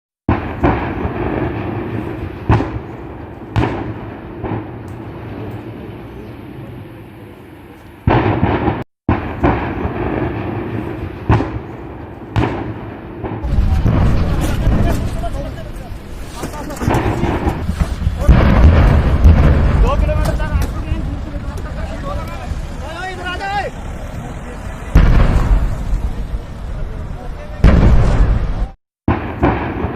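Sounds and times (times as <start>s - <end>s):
gas cylinders bursting: 8.0s - 24.0s.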